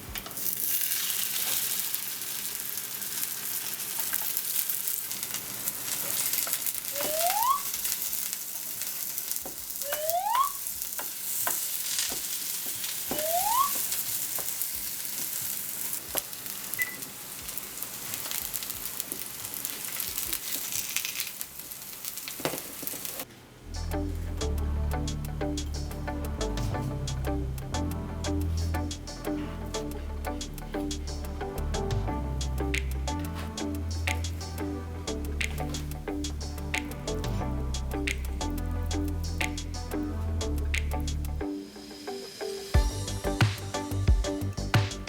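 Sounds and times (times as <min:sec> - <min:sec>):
pancake sizzling in a frying pan: 0:00.0 - 0:23.3
short rising squeaks: 0:07.0 - 0:07.7, 0:13.1 - 0:13.8.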